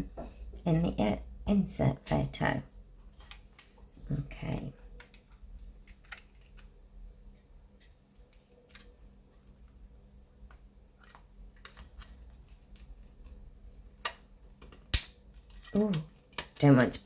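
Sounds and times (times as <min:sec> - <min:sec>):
low steady hum: 0:00.0 - 0:17.0
plastic parts clicking: 0:05.0 - 0:06.8.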